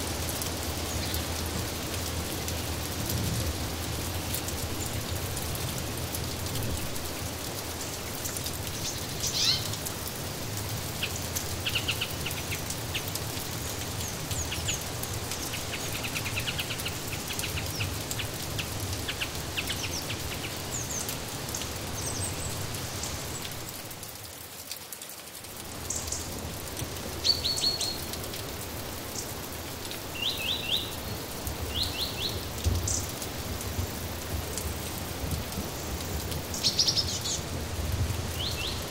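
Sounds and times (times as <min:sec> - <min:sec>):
steady rain: 0:00.0 - 0:38.9
small birds chirping: 0:08.6 - 0:09.8, 0:27.2 - 0:28.2, 0:30.1 - 0:33.1, 0:36.5 - 0:37.5.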